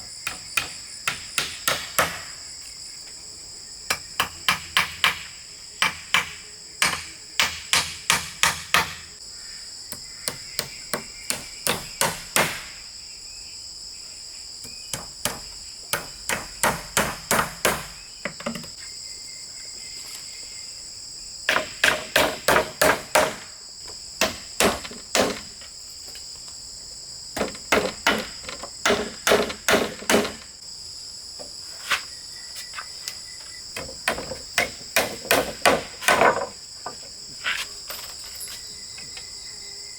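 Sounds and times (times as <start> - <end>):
insects chirring: 0.0 - 39.9
hammer driving nails into wood: 0.2 - 2.3, 3.9 - 9.0, 10.2 - 12.8, 14.9 - 18.0, 21.5 - 23.5, 24.2 - 25.6, 27.4 - 30.5, 34.0 - 36.5.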